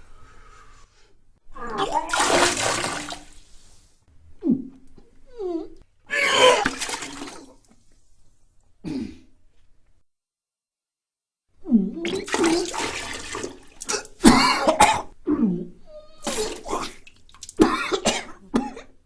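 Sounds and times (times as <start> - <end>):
person vomiting into a toilet: 1.6 - 3.3, 6.1 - 7.6, 11.9 - 18.9.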